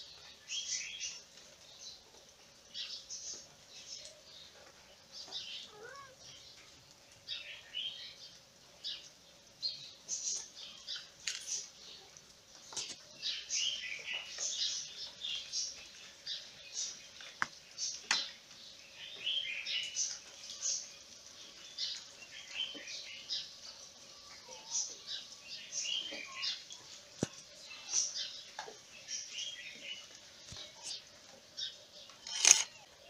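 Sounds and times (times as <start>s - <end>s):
small birds chirping: 0.0s - 33.0s
sharp clicks: 32.2s - 32.8s.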